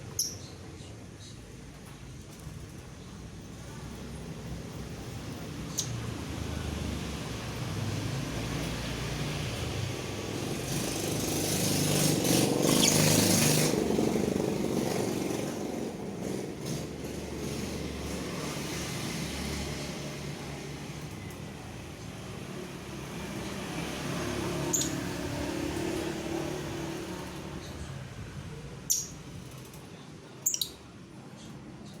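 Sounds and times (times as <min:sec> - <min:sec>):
bird chirping: 0:00.0 - 0:01.3, 0:12.6 - 0:13.7, 0:24.6 - 0:25.1, 0:28.9 - 0:29.2, 0:30.4 - 0:30.9.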